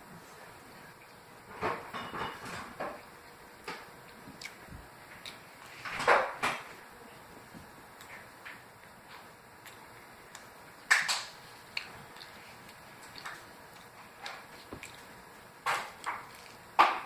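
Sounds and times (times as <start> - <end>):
objects knocking and clattering: 1.5 - 3.0.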